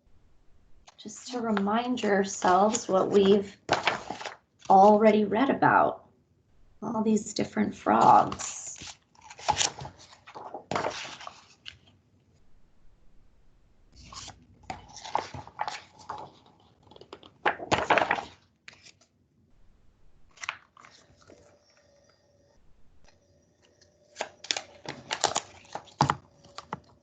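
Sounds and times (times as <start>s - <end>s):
book pages rustling: 2.4s - 5.0s, 8.0s - 12.0s, 14.0s - 19.1s, 20.3s - 21.6s, 24.2s - 27.0s.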